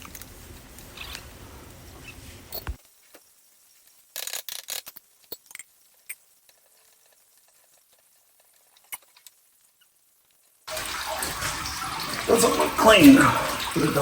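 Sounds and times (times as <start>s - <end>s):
small parts and tools clicking: 2.5s - 10.6s.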